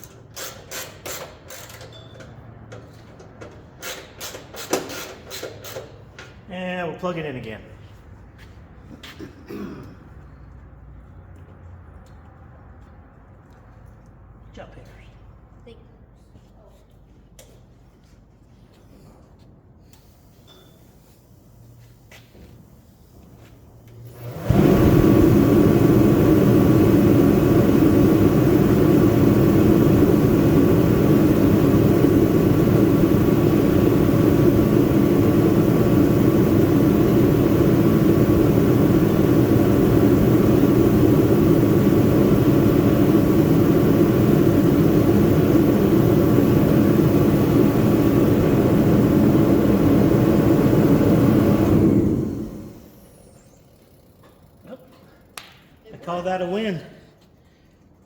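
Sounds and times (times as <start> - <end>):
forced-air heater running: 21.8 - 57.6.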